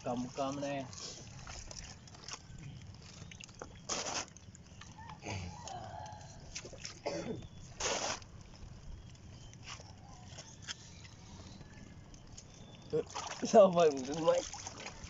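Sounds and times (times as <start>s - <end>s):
seawater splashing: 0.0s - 4.8s, 12.9s - 15.0s.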